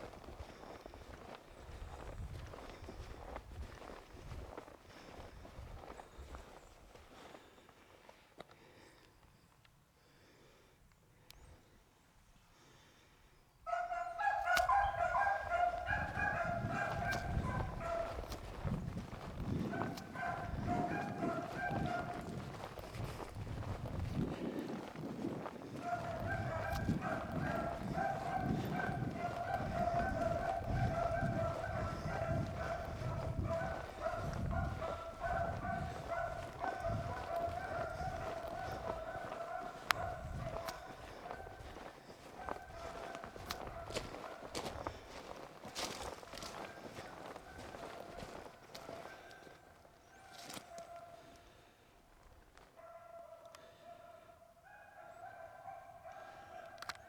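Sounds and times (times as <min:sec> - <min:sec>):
hounds baying: 0:13.7 - 0:51.7, 0:52.6 - 0:57.0.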